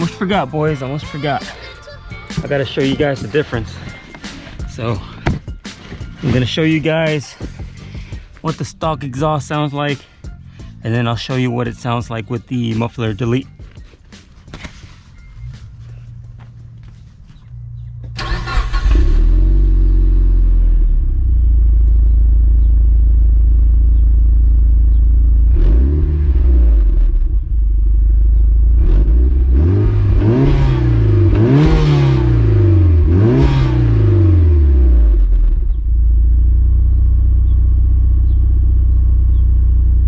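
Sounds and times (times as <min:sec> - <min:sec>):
car engine idling: 0:00.0 - 0:40.0
car engine starting: 0:02.4 - 0:09.7, 0:14.6 - 0:40.0
car engine revving: 0:15.3 - 0:37.6.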